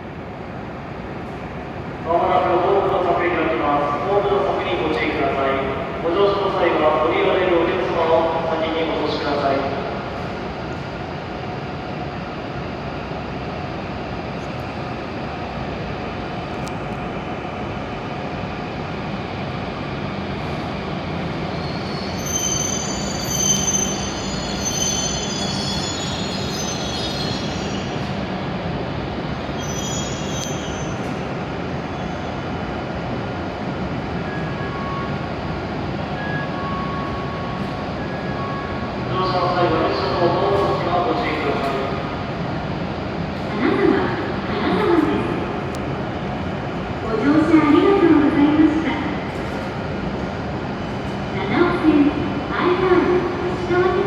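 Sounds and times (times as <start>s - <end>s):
train rumbling: 0.0s - 54.0s
high-pitched wheel squeal: 21.6s - 27.8s, 29.6s - 31.0s.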